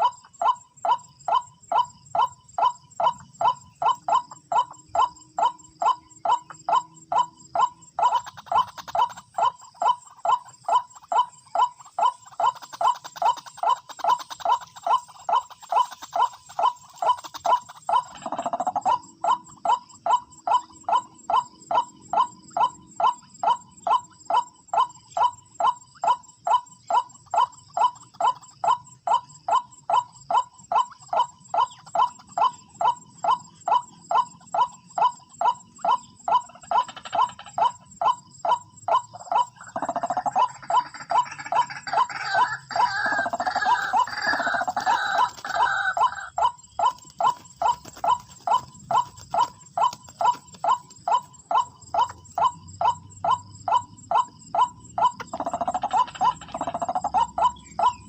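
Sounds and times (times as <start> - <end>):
waterhen calling: 39.1 - 52.6.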